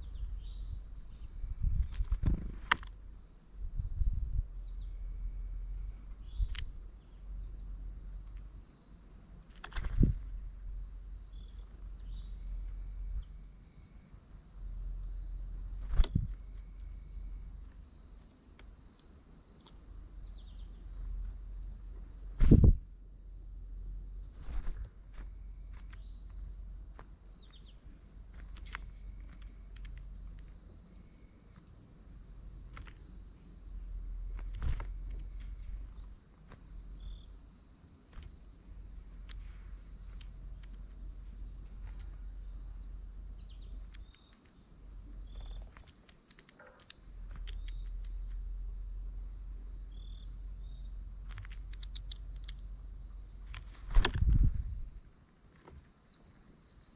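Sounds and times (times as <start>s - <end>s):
crickets chorus: 0.0s - 56.9s
scattered clicks: 28.3s - 30.6s, 43.8s - 44.6s, 45.3s - 48.4s, 51.2s - 52.7s.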